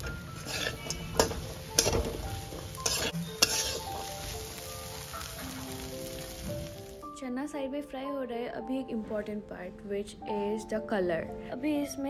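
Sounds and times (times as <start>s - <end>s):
metal spatula scraping a pan: 0.0s - 4.6s
chickpeas sizzling in a wok: 0.0s - 7.1s.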